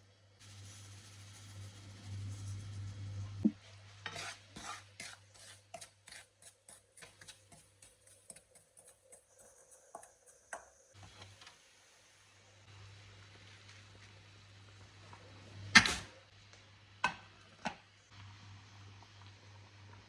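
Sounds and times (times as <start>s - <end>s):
kitchen utensil taps and scrapes: 3.4s - 11.6s.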